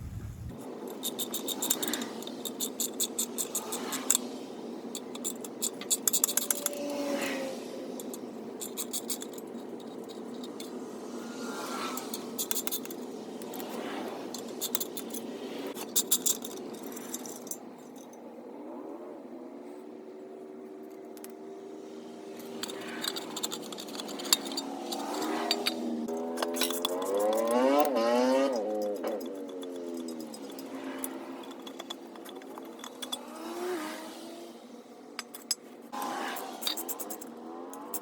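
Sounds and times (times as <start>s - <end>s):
light metallic rattles: 0.0s - 10.9s, 11.5s - 18.3s, 22.3s - 33.9s, 35.2s - 38.0s
ratchet wrench clicking: 4.9s - 7.0s, 22.4s - 33.8s, 35.2s - 38.0s.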